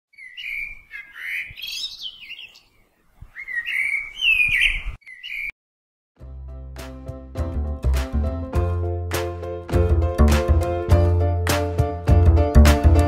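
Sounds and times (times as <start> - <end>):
bird chirping and warbling: 0.1 - 5.6.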